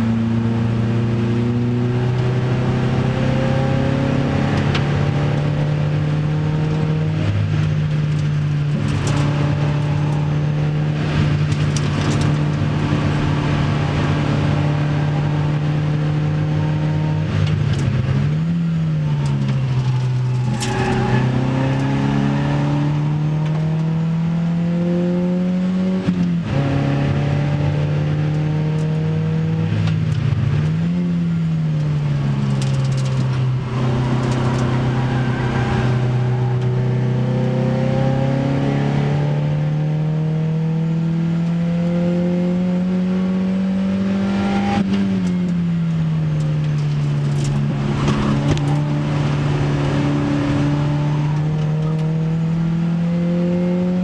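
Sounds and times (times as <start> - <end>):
car engine accelerating: 0.0 - 54.0
wind and road noise: 0.0 - 54.0.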